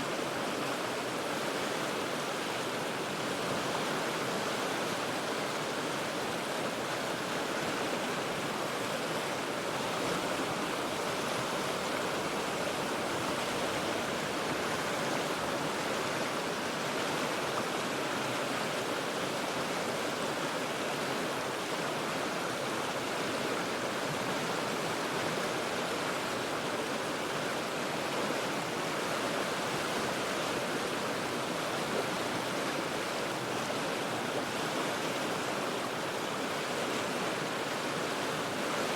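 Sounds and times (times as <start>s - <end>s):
river water rushing over rocks: 0.0s - 38.9s.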